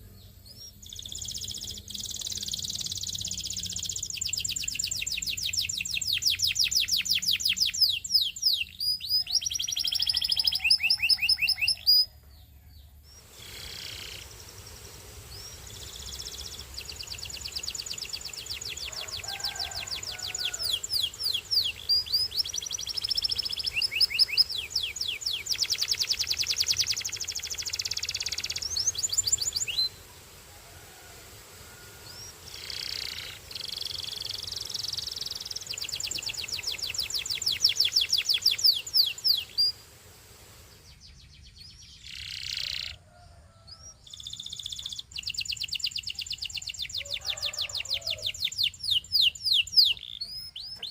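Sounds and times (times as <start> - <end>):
canary singing trills: 0.0 - 30.2, 31.9 - 39.9, 40.7 - 43.0, 43.6 - 50.9.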